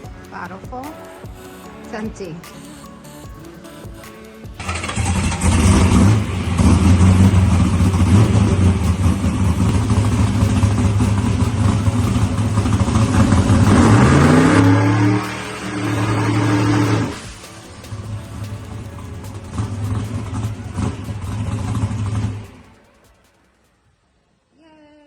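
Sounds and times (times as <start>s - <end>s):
race car engine revving: 4.6s - 22.7s.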